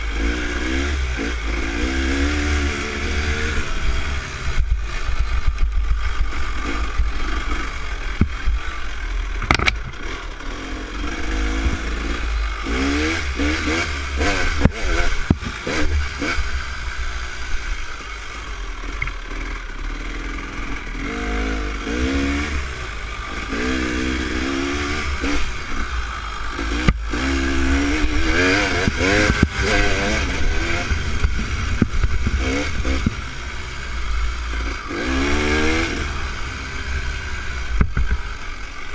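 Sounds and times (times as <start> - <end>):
dirt bike engine revving: 0.0 - 38.9
wind rumble on microphone: 28.0 - 33.4.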